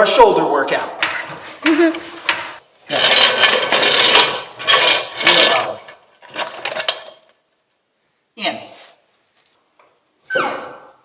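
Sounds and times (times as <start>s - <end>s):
car jack rattling and scraping: 0.7s - 7.4s.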